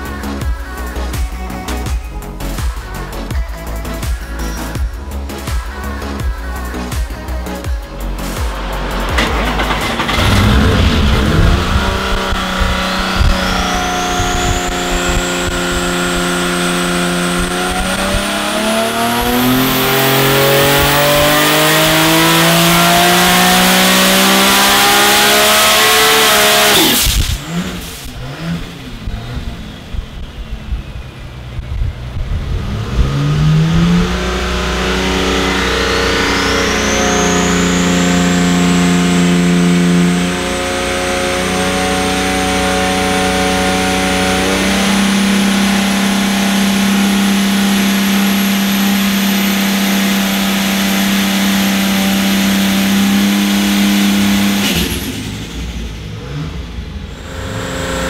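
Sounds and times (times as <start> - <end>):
high turbo whine: 4.9 - 58.0
engine exhaust note under load: 7.2 - 25.2, 26.6 - 49.6.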